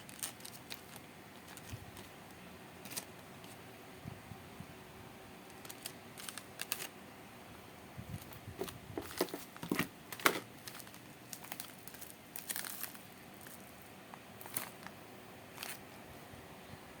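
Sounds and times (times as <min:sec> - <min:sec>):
packaging crinkling: 0:00.0 - 0:03.6, 0:05.5 - 0:06.9, 0:08.2 - 0:13.7, 0:14.4 - 0:15.9.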